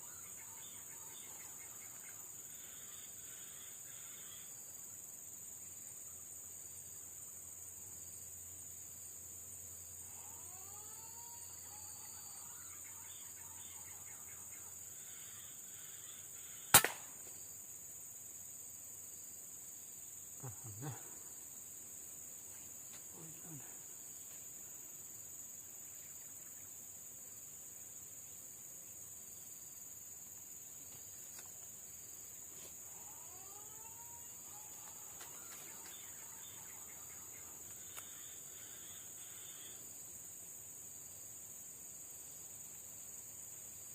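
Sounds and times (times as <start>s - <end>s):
high insect hum: 0.0s - 43.9s
air rifle shot: 16.7s - 17.3s.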